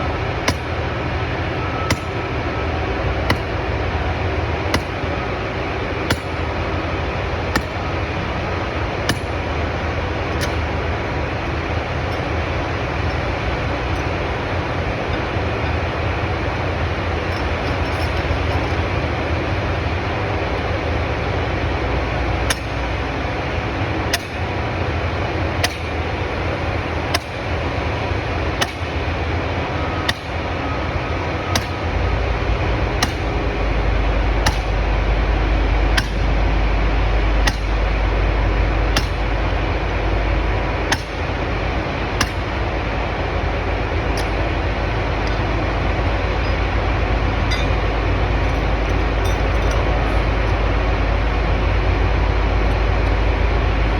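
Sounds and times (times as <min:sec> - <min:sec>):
loud machine rumble: 0:00.0 - 0:53.9
sledgehammer striking steel pins: 0:01.9 - 0:02.2, 0:03.3 - 0:03.6, 0:04.7 - 0:05.1, 0:06.0 - 0:06.5, 0:07.5 - 0:07.9, 0:09.1 - 0:15.8, 0:22.5 - 0:23.0, 0:25.6 - 0:26.0, 0:27.1 - 0:27.5, 0:28.6 - 0:29.0, 0:30.1 - 0:30.4, 0:33.0 - 0:33.3, 0:34.4 - 0:34.8, 0:36.0 - 0:36.3, 0:37.4 - 0:37.8, 0:39.0 - 0:39.3, 0:40.9 - 0:41.3, 0:42.2 - 0:42.6, 0:44.2 - 0:46.7, 0:47.4 - 0:50.6.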